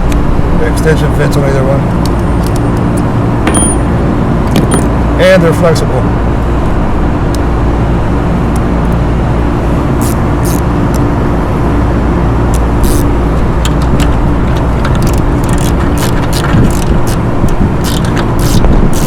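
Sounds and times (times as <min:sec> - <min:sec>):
machinery drone with low hum: 0:00.0 - 0:19.0
hand ratchet clicking: 0:10.0 - 0:11.0, 0:12.5 - 0:19.0.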